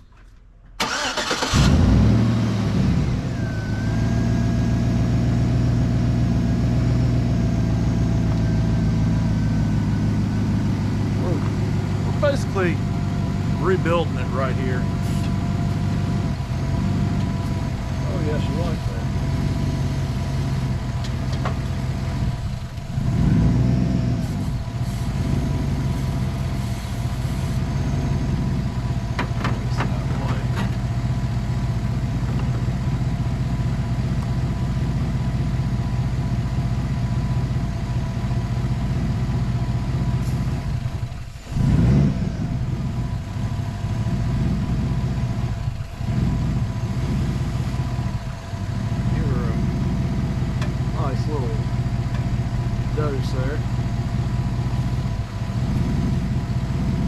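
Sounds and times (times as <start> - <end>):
gasoline engine idling: 0.0 - 23.4, 24.0 - 41.6, 42.3 - 57.0
cleaner spraying into intake: 24.2 - 27.7.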